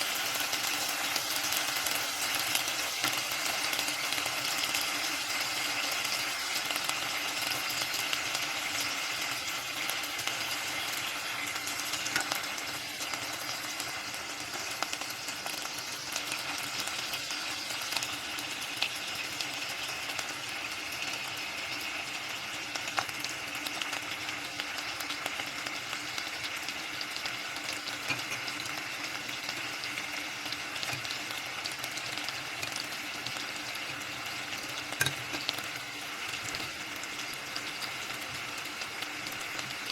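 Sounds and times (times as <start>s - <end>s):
food sizzling in a pan: 0.0s - 39.9s
oil popping and crackling: 22.7s - 39.9s.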